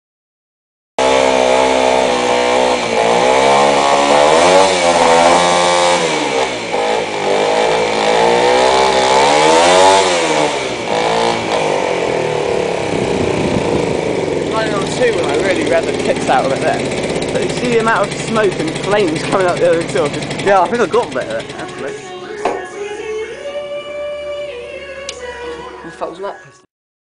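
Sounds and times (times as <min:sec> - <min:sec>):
motorcycle engine revving: 0:01.0 - 0:25.4.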